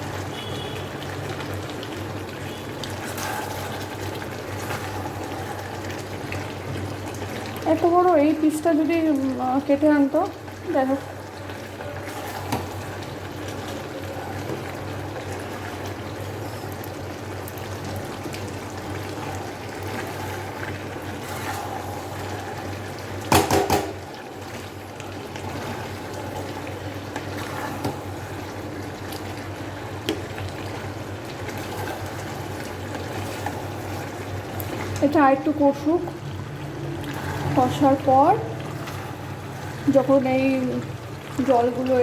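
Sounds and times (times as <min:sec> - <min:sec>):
curry sizzling and bubbling in a pan: 0:00.0 - 0:42.0
loud knocks: 0:23.3 - 0:24.0.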